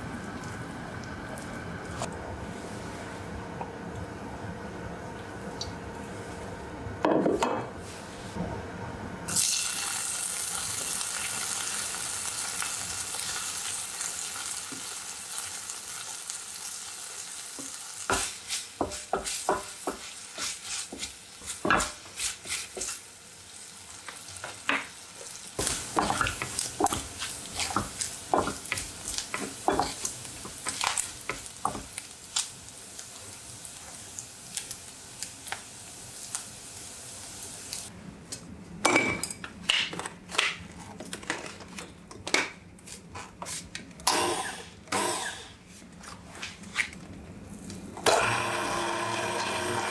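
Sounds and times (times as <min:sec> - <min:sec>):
bacon sizzling in oil: 0:09.3 - 0:37.9.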